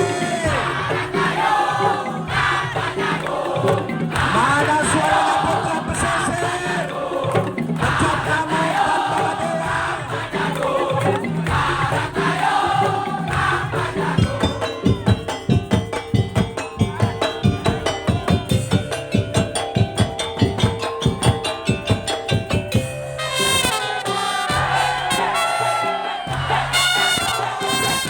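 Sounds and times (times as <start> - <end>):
percussion ensemble playing: 0.0 - 28.0
loud high horn-like melody: 23.2 - 28.0.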